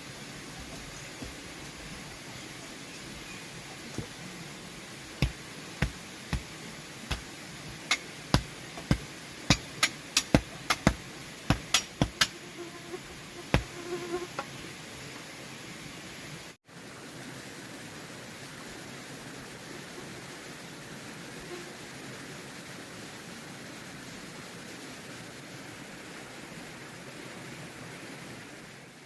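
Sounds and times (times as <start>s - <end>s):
background hiss: 0.0s - 29.0s
sharp knocks: 5.2s - 6.5s, 7.1s - 12.3s.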